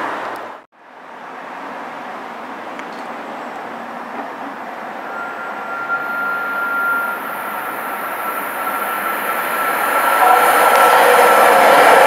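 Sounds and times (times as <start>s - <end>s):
train approaching: 0.0s - 12.0s
high steady whine: 5.0s - 12.0s.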